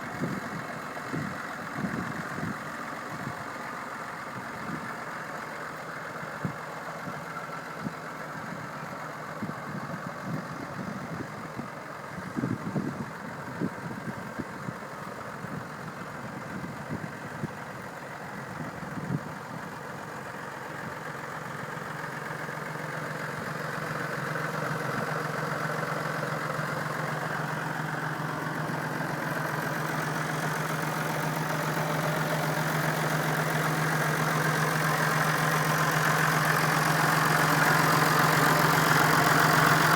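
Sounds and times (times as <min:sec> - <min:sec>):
tractor engine idling: 0:00.0 - 0:39.9.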